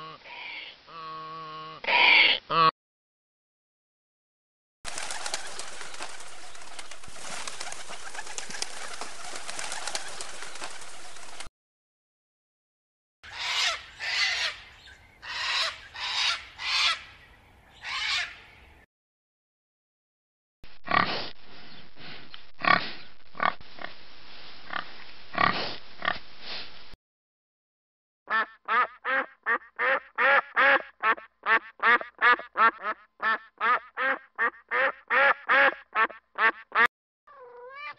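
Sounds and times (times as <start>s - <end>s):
pigs grunting: 20.8s - 21.2s, 22.6s - 23.6s, 24.7s - 26.2s.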